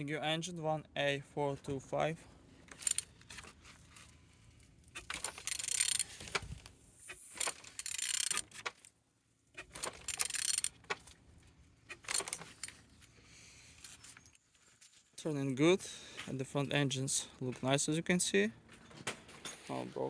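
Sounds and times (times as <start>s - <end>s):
engine turned over by wrench: 2.7s - 3.5s, 4.9s - 8.7s, 9.6s - 11.1s, 11.9s - 12.8s.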